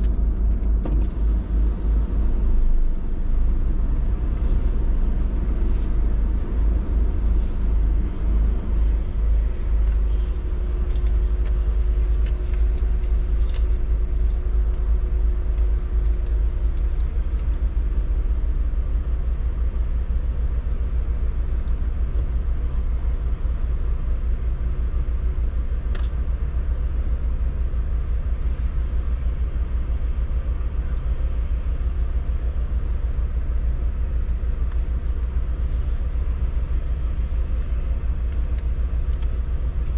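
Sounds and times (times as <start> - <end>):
car rumbling: 0.0 - 39.9
faint hum: 0.0 - 39.9
light ticks: 38.3 - 39.9.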